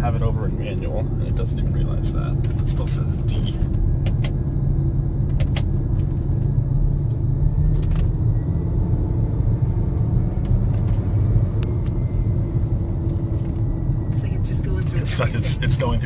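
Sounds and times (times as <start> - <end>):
car engine rumble from cabin: 0.0 - 16.0.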